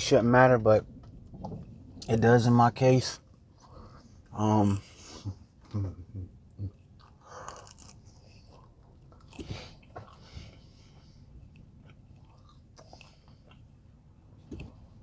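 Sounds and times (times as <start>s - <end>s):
chewing and mouth sounds: 4.7s - 15.0s.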